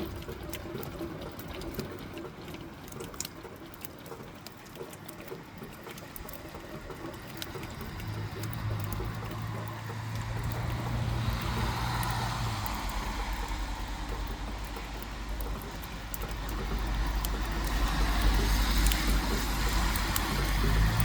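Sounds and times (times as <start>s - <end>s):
low engine rumble: 5.6s - 21.0s
tyre hiss on wet road: 10.0s - 15.3s.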